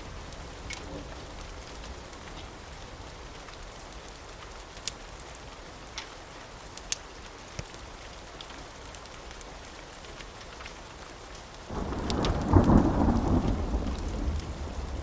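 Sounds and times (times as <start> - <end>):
fireplace crackles: 0.0 - 15.0
steady rain: 0.0 - 15.0
thunderclap rolling: 11.7 - 15.0.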